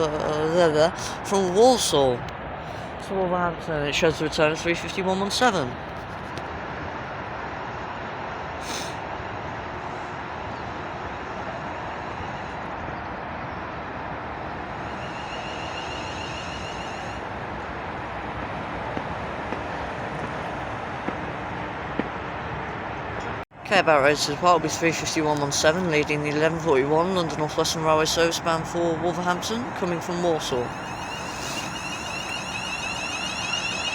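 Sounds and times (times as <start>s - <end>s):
short air hiss: 8.6s - 9.0s, 14.8s - 17.2s
electric train running noise: 8.6s - 21.8s, 27.2s - 33.9s.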